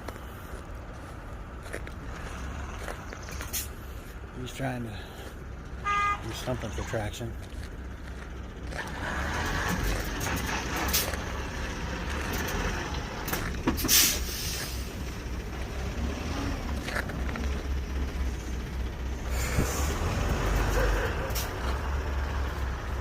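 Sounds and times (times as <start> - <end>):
diesel trucks idling: 0.0 - 23.0
short hisses: 13.8 - 14.9.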